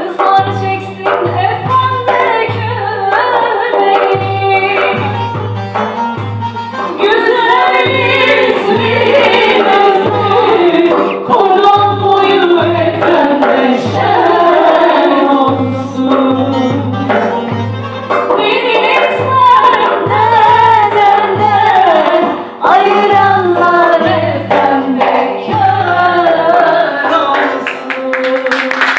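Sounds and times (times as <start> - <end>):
low drum beating: 0.4 - 26.7
voices singing a folk song: 6.9 - 17.3, 18.4 - 28.5.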